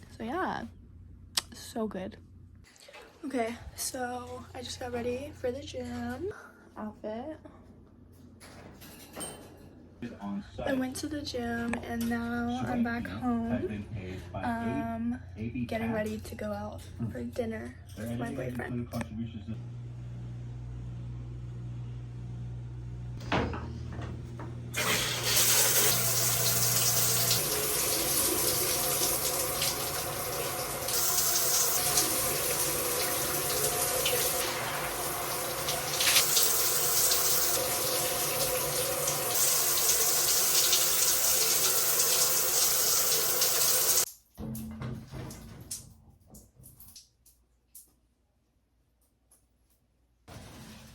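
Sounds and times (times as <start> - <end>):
water running from a tap: 24.8 - 44.1.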